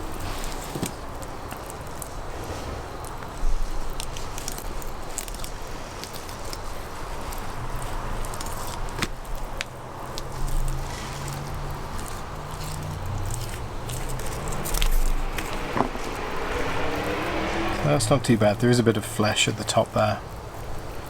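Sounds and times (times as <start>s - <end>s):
low hum: 12.4s - 19.1s.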